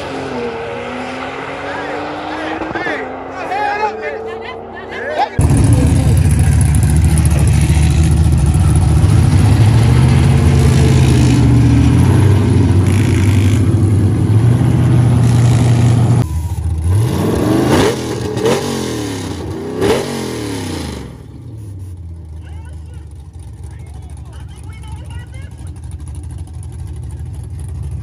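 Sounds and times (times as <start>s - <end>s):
drag car engine revving: 0.0s - 28.0s
car engine running steadily: 5.1s - 17.4s, 21.0s - 28.0s.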